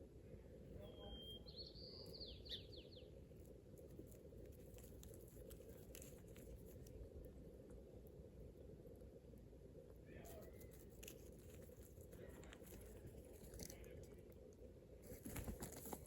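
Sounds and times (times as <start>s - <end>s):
low steady hum: 0.0s - 16.0s
bird whistling call: 0.8s - 2.9s.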